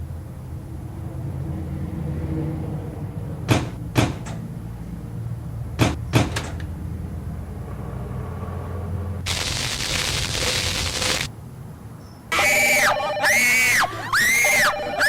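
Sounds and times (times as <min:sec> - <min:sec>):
sharp knocks: 0:03.5 - 0:04.4, 0:05.8 - 0:06.7.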